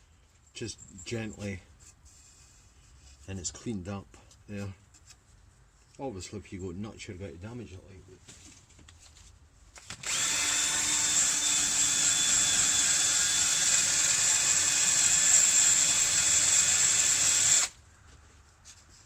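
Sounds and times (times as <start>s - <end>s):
drill with wire brush scrubbing: 9.9s - 17.8s.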